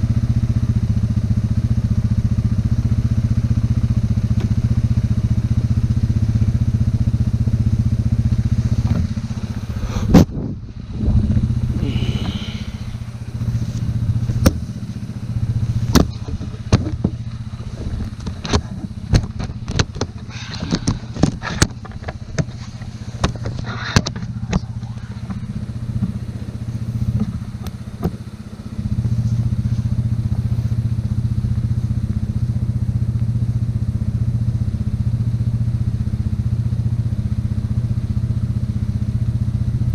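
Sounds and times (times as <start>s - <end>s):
atv engine running under load: 0.0s - 39.9s
sharp clanks and knocks: 15.8s - 26.3s.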